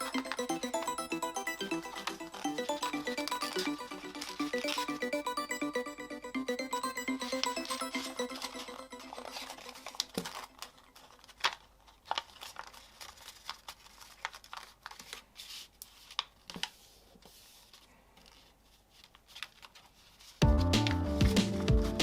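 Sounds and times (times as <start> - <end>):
background music: 0.0 - 10.4, 20.4 - 22.0
paper crinkling and folding: 9.3 - 20.4.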